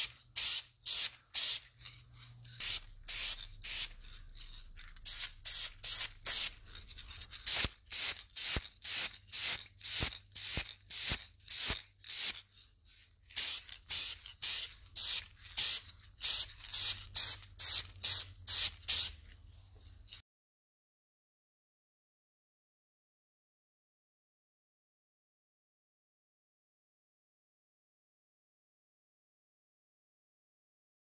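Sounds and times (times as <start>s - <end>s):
spray hissing bursts: 0.0s - 1.7s, 2.6s - 4.0s, 5.0s - 6.6s, 7.4s - 12.4s, 13.4s - 19.2s.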